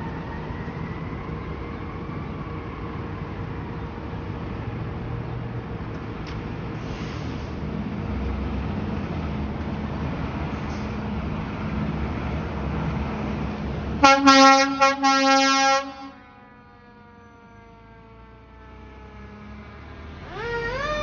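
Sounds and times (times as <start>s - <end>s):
fire truck rumbling past: 0.0s - 21.0s
fire truck air horn blasts: 14.0s - 16.6s.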